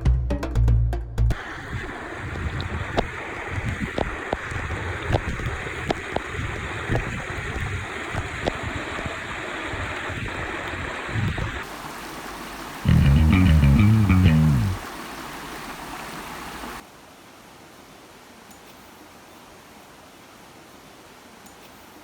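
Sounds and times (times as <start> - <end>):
stream running over rocks: 1.3 - 18.4
small clicks and splashes: 2.3 - 11.4.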